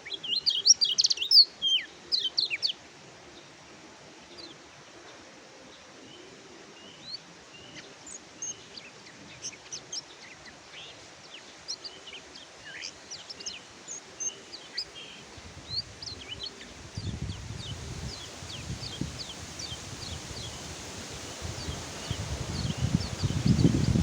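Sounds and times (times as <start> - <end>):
bird chirping and twittering: 0.0 - 2.8, 11.8 - 24.0.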